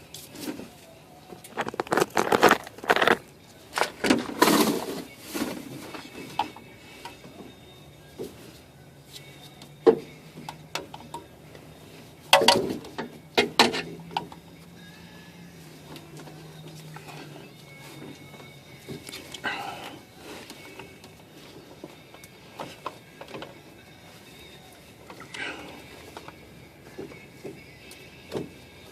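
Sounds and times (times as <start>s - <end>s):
hand tools knocking and scraping: 12.3s - 14.4s.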